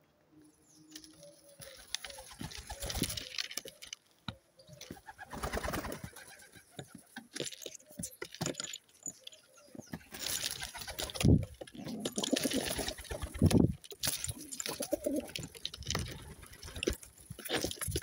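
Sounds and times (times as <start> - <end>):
pigeons cooing: 1.0 - 3.9, 9.6 - 18.0.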